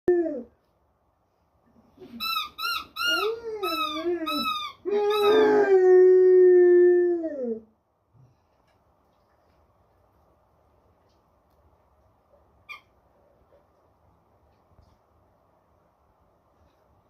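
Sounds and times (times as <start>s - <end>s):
dog squeaking: 2.0s - 5.5s, 12.7s - 12.9s
dog howling whine: 3.1s - 7.6s.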